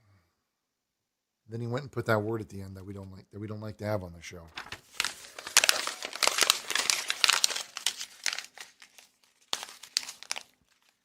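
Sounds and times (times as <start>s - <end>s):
crumpling and crinkling: 4.5s - 11.0s.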